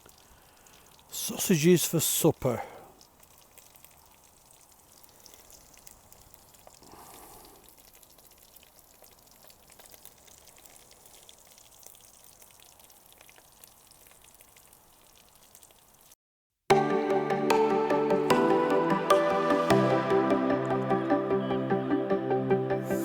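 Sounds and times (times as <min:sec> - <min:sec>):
sausages sizzling in a pan: 0:03.2 - 0:16.2.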